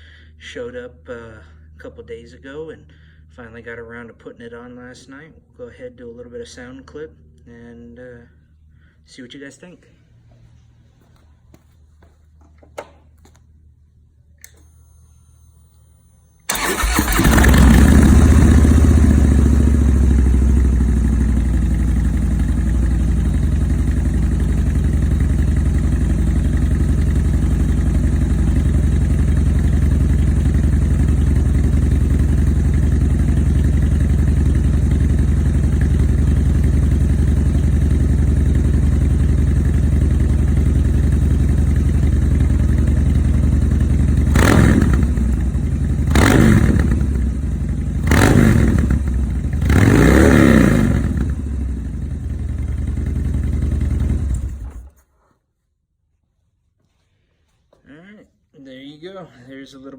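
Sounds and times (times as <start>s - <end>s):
motorcycle engine starting and idling: 14.4s - 55.2s.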